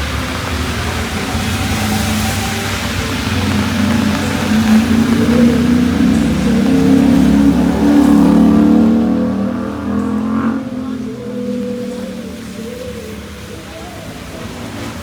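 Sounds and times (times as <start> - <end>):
vehicle engine accelerating: 0.0 - 15.0.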